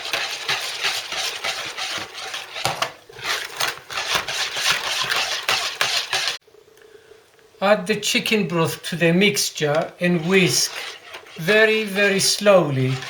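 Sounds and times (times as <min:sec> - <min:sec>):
utensil beating eggs in a bowl: 0:00.0 - 0:06.4, 0:09.6 - 0:13.0.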